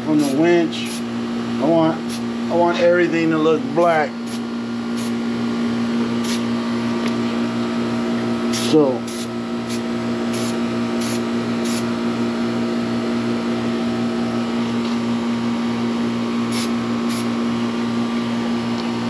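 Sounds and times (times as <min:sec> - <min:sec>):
machine hum with pulsing throb: 0:00.0 - 0:19.0
spray can hissing: 0:00.2 - 0:01.0, 0:05.0 - 0:05.2, 0:06.2 - 0:06.4, 0:08.5 - 0:11.9, 0:16.5 - 0:17.3.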